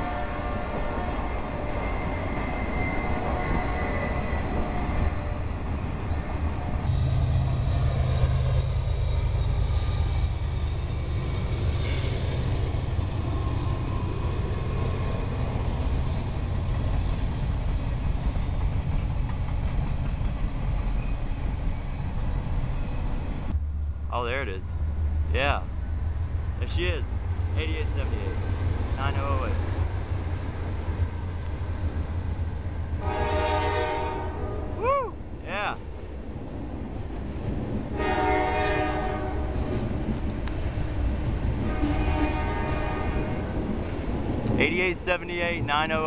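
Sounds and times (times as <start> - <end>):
diesel locomotives engine hum: 0.0 - 46.0
train cars rolling over rails: 0.8 - 23.5.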